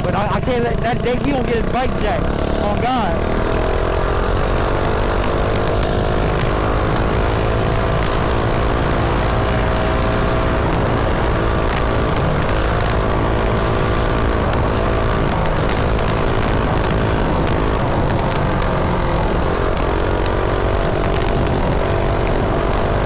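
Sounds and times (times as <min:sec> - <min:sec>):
small engine running: 0:00.0 - 0:23.0
wind rumble on microphone: 0:02.7 - 0:23.0.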